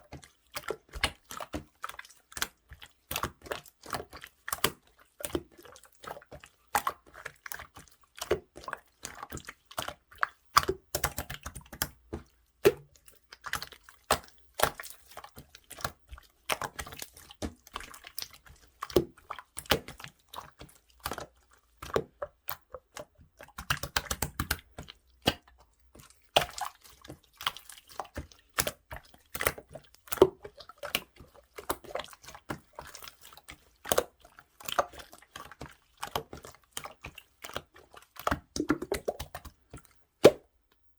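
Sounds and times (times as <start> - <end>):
wet slime clicks and pops: 23.6 - 25.6, 40.2 - 40.5.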